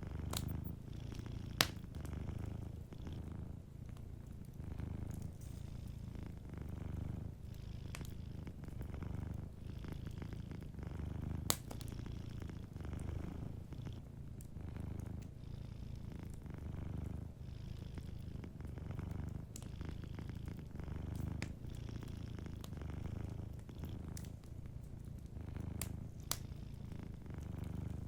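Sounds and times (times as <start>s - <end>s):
cat purring: 0.0s - 28.0s
wood fire crackling and popping: 0.1s - 2.7s, 7.9s - 9.5s, 11.1s - 12.0s, 20.5s - 26.6s.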